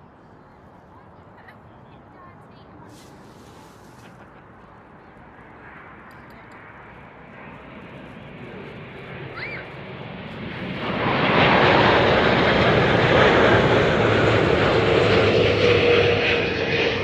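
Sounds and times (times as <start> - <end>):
airliner turbofan engines roaring: 0.0 - 17.0.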